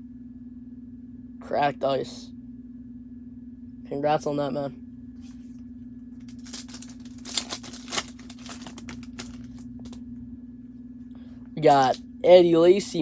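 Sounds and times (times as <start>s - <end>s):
steady low hum: 0.0s - 13.0s
wrapper tearing and crinkling: 6.2s - 10.0s, 11.6s - 12.0s.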